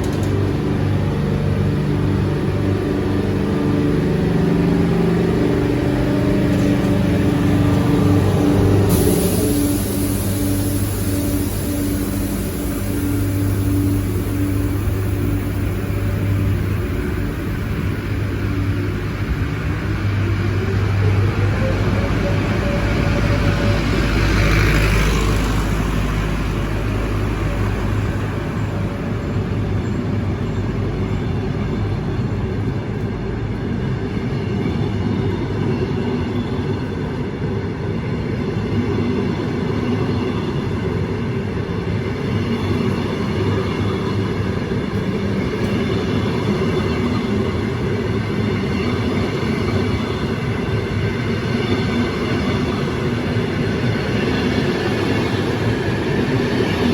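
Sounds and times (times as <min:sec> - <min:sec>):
heavy low rumble: 0:00.0 - 0:24.3
train running noise: 0:00.0 - 0:56.9.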